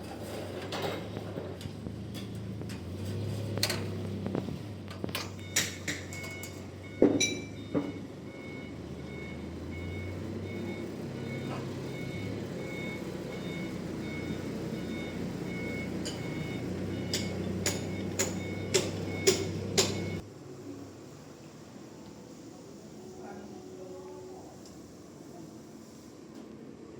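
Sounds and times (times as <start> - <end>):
vehicle engine running: 1.2 - 5.6, 7.6 - 20.2
vehicle reversing alarm beeping: 5.2 - 20.2.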